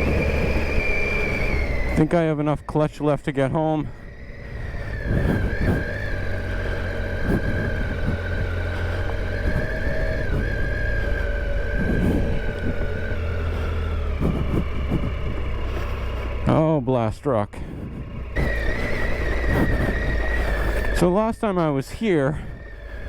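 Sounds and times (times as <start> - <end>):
high whine: 0.0 - 23.0
motorcycle engine running: 0.0 - 23.0
low thumps: 3.9 - 16.4, 17.6 - 21.0.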